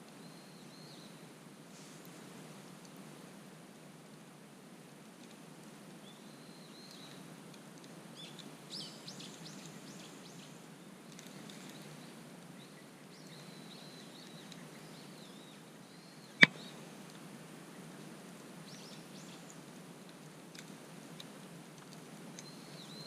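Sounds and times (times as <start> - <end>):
soft steady hiss: 0.0 - 23.0
small birds singing: 0.1 - 1.2, 6.0 - 7.3, 8.2 - 10.5, 11.2 - 16.8, 18.6 - 19.6, 22.4 - 23.0.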